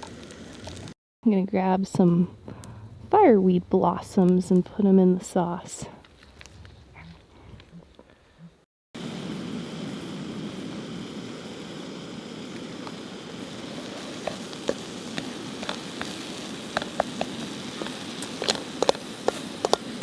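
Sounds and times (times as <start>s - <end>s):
sauce sizzling and bubbling: 9.0s - 20.0s
sharp pops and crackles: 10.0s - 20.0s.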